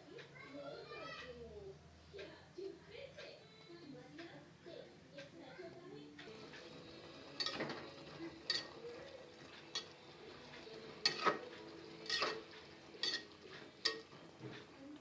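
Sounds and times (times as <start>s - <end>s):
spoon knocking and scraping pot: 7.3s - 8.8s, 9.6s - 10.0s, 10.9s - 14.6s.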